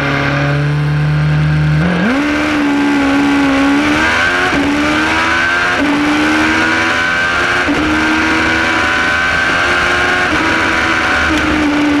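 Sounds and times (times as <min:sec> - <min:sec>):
motorcycle engine accelerating: 0:00.0 - 0:12.0
wind and road noise: 0:00.0 - 0:12.0.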